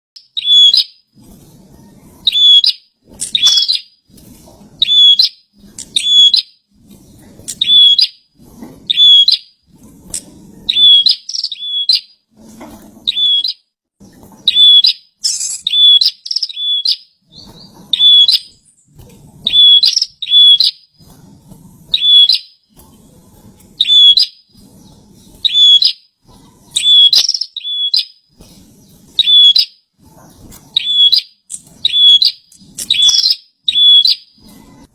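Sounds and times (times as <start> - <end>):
bird chirping loudly: 0.2 - 1.0, 2.2 - 3.9, 4.8 - 6.5, 7.5 - 8.1, 8.9 - 9.5, 10.7 - 12.1, 13.1 - 13.6, 14.5 - 18.7, 19.5 - 20.8, 21.9 - 22.5, 23.8 - 24.4, 25.4 - 26.0, 26.8 - 28.2, 29.2 - 29.7, 30.8 - 34.4.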